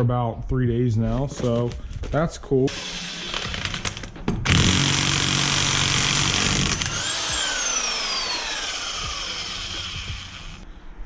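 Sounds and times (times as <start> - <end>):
power tool motor winding down: 2.7 - 10.6.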